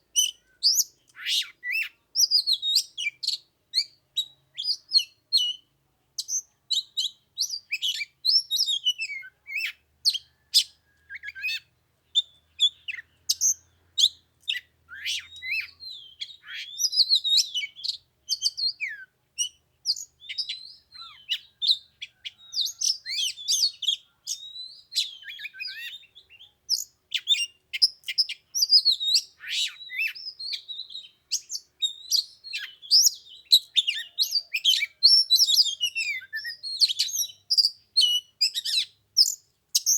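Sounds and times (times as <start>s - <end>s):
bird singing whistles and chirps: 0.1s - 39.9s.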